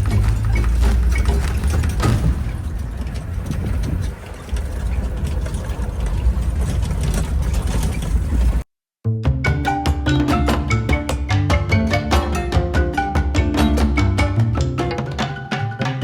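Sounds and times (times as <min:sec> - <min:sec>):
vehicle engine rumble: 0:00.0 - 0:08.6
music with drums: 0:09.2 - 0:16.0.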